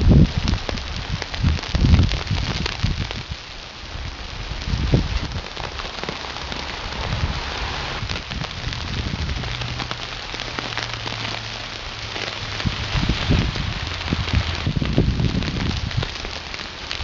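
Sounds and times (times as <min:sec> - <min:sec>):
freezing rain pattering: 0:00.0 - 0:17.0
low rumble: 0:04.3 - 0:16.2.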